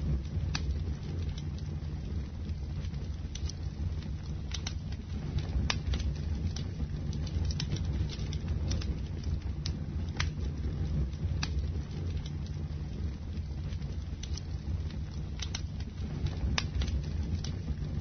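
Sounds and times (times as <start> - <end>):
fire crackling and popping: 0.0 - 18.0
low rumble of fire flames: 0.0 - 18.0.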